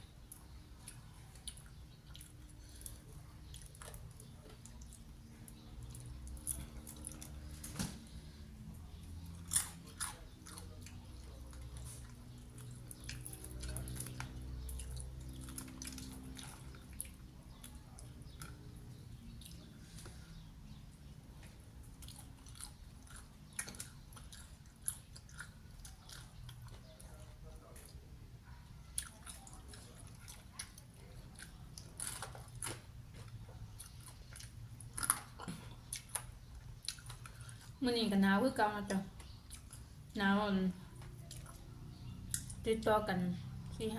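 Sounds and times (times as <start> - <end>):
person chewing crunchy food: 0.1 - 28.0, 28.8 - 37.8, 39.2 - 40.2, 40.9 - 42.6.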